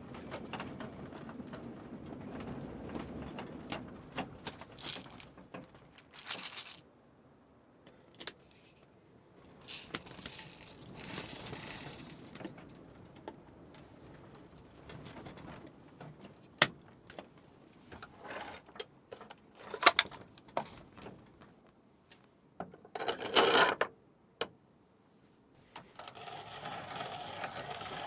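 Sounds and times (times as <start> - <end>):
rustling: 4.0 - 6.8, 8.4 - 12.7.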